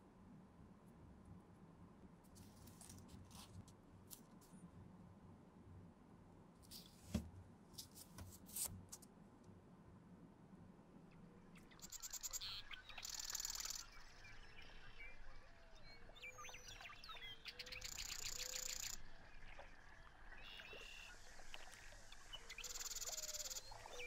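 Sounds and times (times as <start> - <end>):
bird chirps: 11.6 - 24.0.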